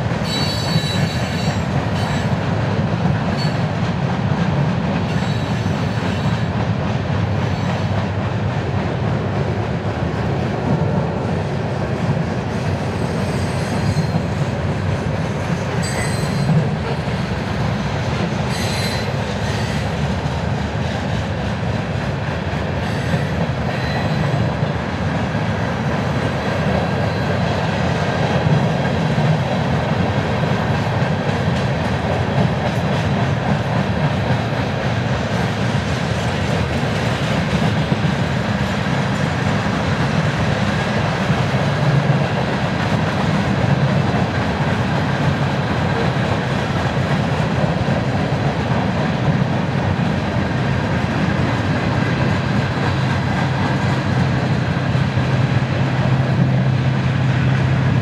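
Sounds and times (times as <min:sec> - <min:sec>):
train wheels rumbling on rail: 0:00.0 - 0:58.0
wheel squeals: 0:00.3 - 0:02.3, 0:15.8 - 0:16.5.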